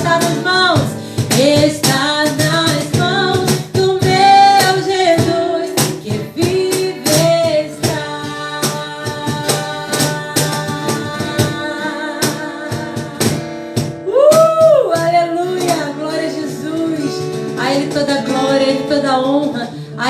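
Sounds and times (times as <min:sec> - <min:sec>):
strummed acoustic guitar: 0:00.0 - 0:20.0
voices singing worship song: 0:01.1 - 0:13.7.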